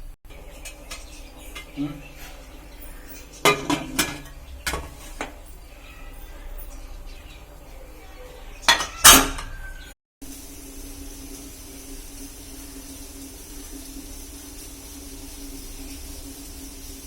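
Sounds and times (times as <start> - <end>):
metal utensils clanking on pot: 0.3 - 5.6, 8.7 - 9.6.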